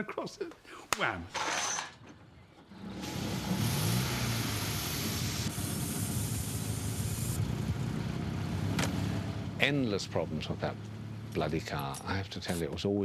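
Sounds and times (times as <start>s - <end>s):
loud even hiss: 2.9s - 7.9s
car engine running: 3.0s - 12.4s.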